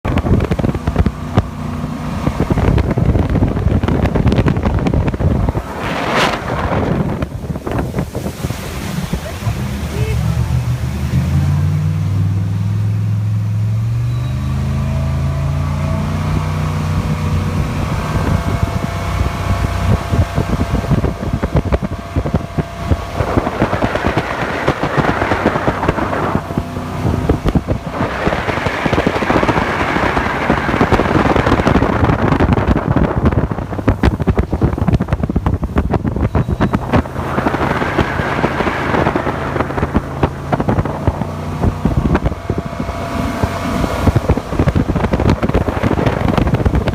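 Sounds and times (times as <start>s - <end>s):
heavy rushing water noise: 0.0s - 13.6s, 15.7s - 46.9s
boat engine running: 0.0s - 46.9s.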